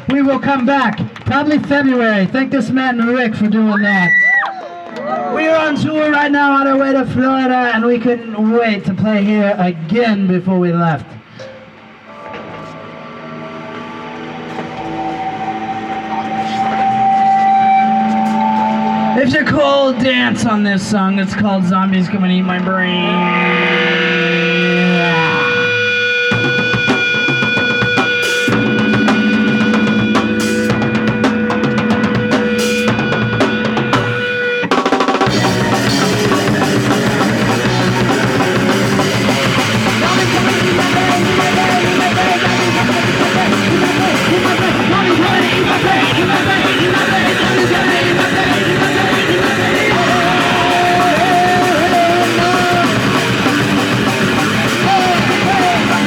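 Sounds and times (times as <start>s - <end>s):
held guitar tone: 11.2s - 20.5s, 21.4s - 56.0s
bass note: 21.4s - 34.6s, 35.2s - 56.0s
punk rock band playing live: 25.8s - 56.0s
drum hits: 26.3s - 56.0s.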